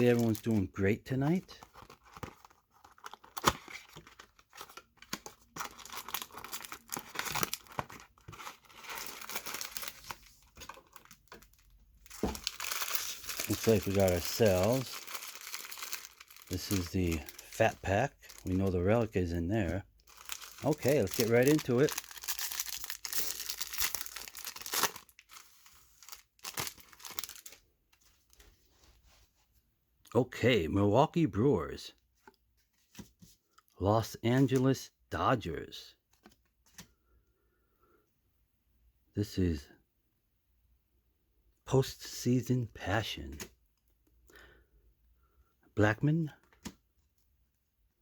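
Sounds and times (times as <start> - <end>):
packaging tearing and crinkling: 0.0 - 0.6, 1.4 - 19.1, 20.1 - 27.6.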